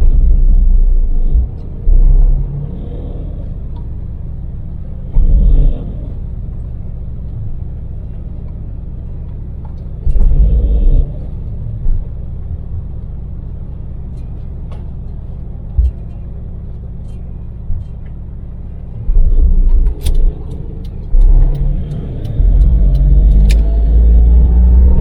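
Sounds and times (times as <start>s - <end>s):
short loud low rumbles: 0.0s - 3.8s, 10.1s - 12.1s, 18.9s - 25.0s
road noise inside cabin: 0.0s - 25.0s
van engine: 0.0s - 25.0s.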